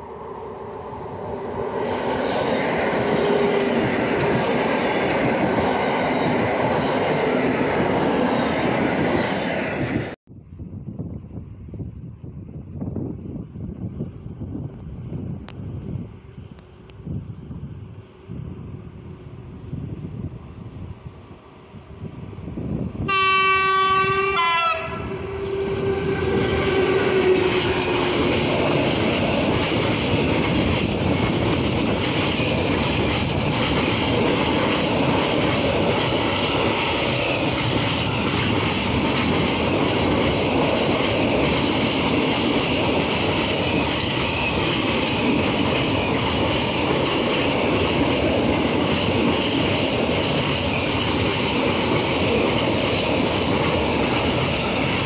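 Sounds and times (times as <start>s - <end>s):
freight train rolling past: 0.0s - 10.2s, 11.0s - 55.0s
locomotive horn: 23.1s - 28.2s.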